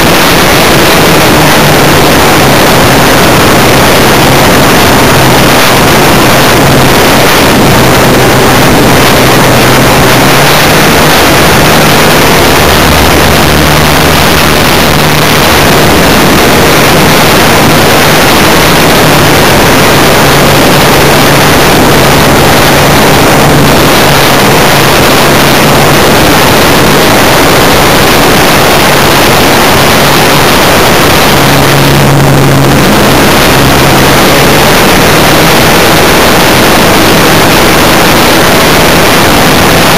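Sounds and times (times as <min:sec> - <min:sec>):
model aeroplane engine: 0:00.0 - 0:39.9
wind noise: 0:00.0 - 0:39.9.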